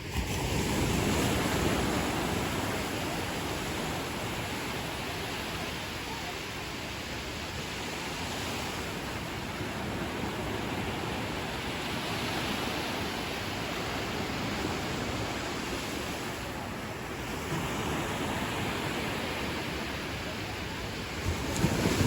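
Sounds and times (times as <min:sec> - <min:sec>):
ocean surf washing onto beach: 0:00.0 - 0:22.0.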